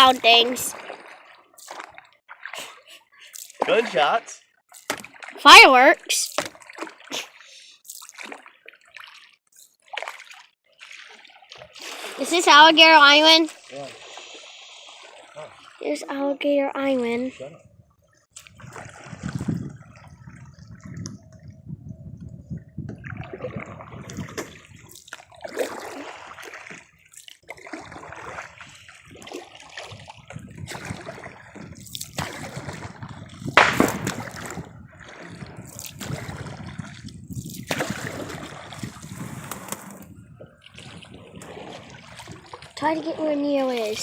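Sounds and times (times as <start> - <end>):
paddle splashing water: 0.0 - 17.5, 18.3 - 21.6, 22.8 - 44.0.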